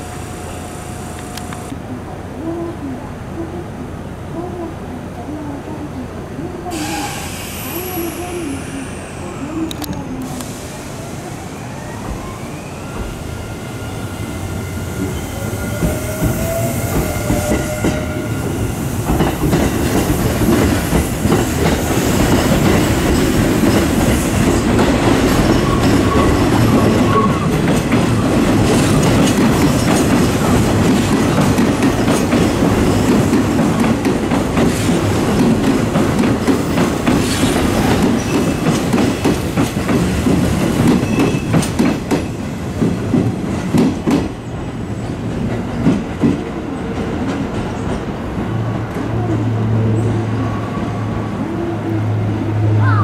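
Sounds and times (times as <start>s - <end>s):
train wheels clattering on rails: 14.9s - 50.2s.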